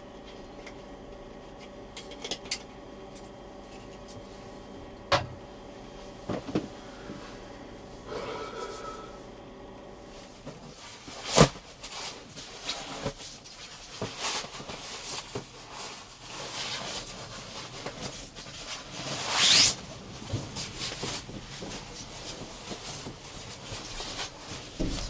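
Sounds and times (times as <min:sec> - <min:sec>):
light knocks and rustles: 0:20.4 - 0:25.0.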